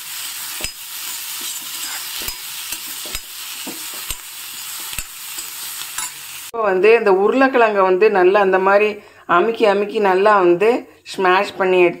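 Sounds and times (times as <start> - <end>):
vegetables sizzling in hot oil: 0.0 - 6.6
spoon scraping and knocking pan: 0.4 - 6.3.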